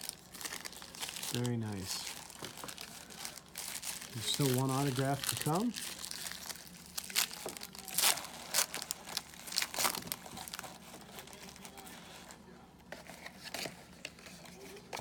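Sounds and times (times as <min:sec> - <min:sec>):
card pack wrapper crinkling and tearing: 0:00.0 - 0:12.4.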